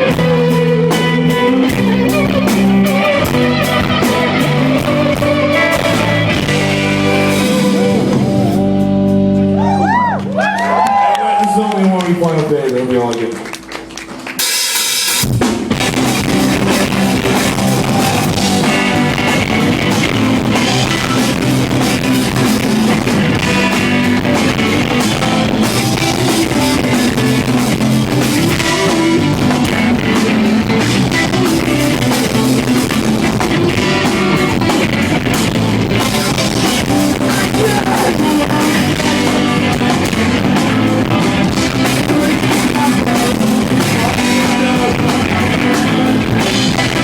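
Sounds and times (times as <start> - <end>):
drum kit: 0.0 - 11.4, 13.4 - 47.0
electric guitars: 0.0 - 11.7, 12.4 - 47.0
person singing: 36.0 - 47.0.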